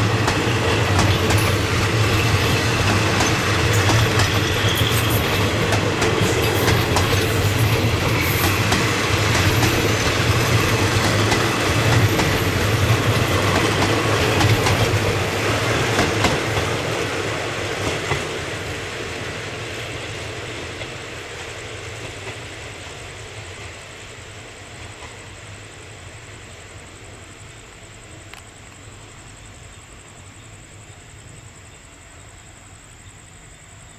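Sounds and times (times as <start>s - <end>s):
train wheels clicking over rail joints: 0.0s - 19.7s.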